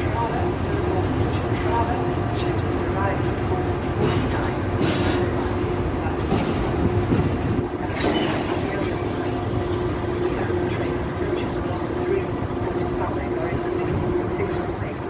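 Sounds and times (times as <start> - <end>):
train wheels rolling on rail: 0.0 - 15.0
high wheel squeal: 7.9 - 15.0.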